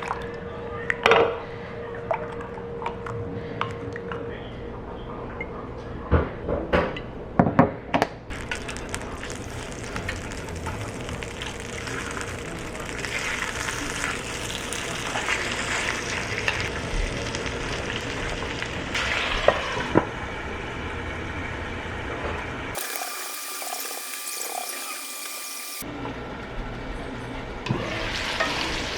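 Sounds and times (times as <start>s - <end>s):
food sizzling in a frying pan: 8.3s - 19.8s, 22.8s - 25.8s.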